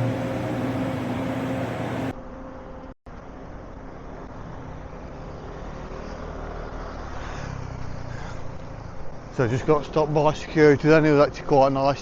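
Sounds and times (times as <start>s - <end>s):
hum of passing vehicles: 0.0s - 2.2s, 3.2s - 11.4s.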